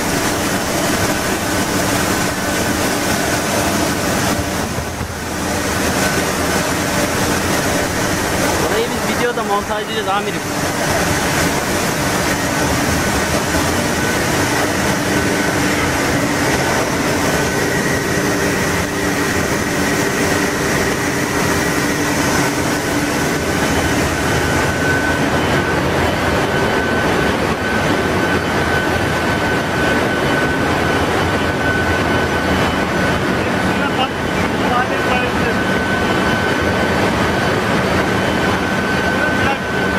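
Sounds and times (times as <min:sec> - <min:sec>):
engine room machinery running: 0:00.0 - 0:39.9.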